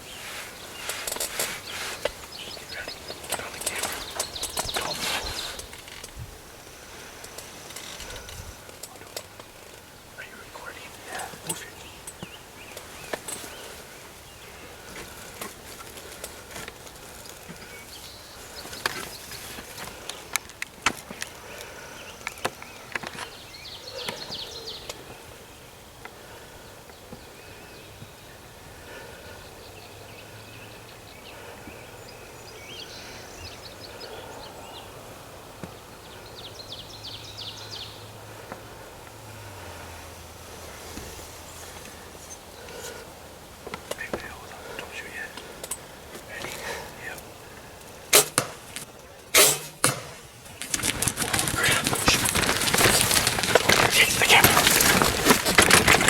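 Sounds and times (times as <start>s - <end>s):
small birds trilling: 0.0s - 49.3s, 50.2s - 56.0s
clicks and rustles of movement: 0.2s - 6.3s, 47.8s - 56.0s.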